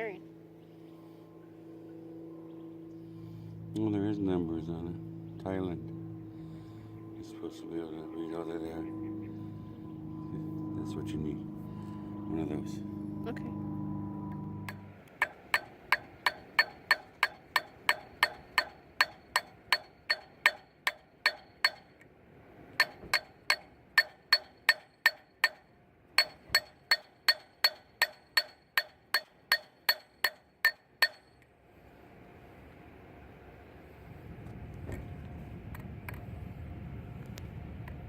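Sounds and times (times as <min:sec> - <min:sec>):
hammer striking metal socket: 0:15.2 - 0:22.0, 0:22.8 - 0:25.6, 0:26.2 - 0:31.5.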